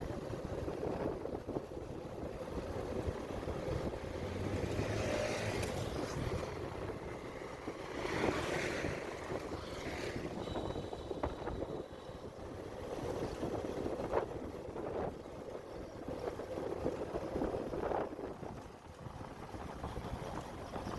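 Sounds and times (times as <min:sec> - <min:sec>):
wind buffeting microphone: 0:00.0 - 0:20.9
motorcycle engine: 0:03.3 - 0:13.4.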